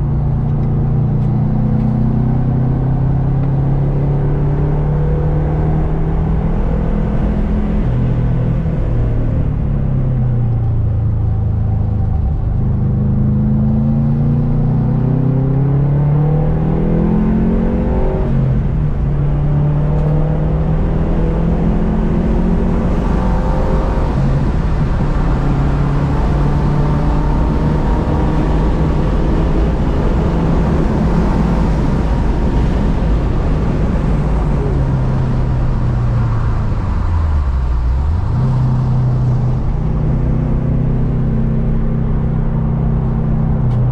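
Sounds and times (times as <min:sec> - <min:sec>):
turbocharged engine revving: 0:12.7 - 0:43.9.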